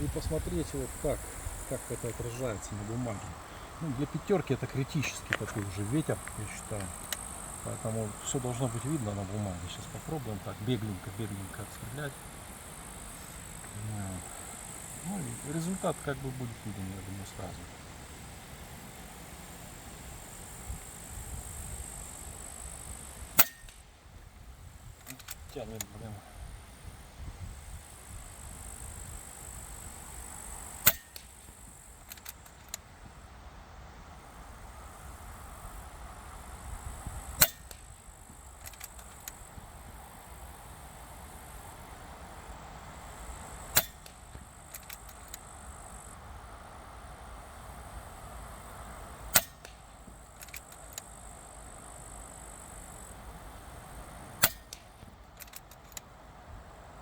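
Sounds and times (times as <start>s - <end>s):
wind rumbling on microphone: 0.0s - 15.5s, 16.4s - 55.4s
quiet clicks: 4.6s - 7.3s, 25.0s - 26.0s, 30.9s - 33.2s, 37.4s - 39.6s, 43.7s - 45.5s, 49.4s - 51.1s, 54.4s - 56.1s
air rifle shots: 23.3s - 23.9s, 30.8s - 31.5s, 37.4s - 37.9s, 43.6s - 45.2s, 49.3s - 50.8s, 54.4s - 55.7s.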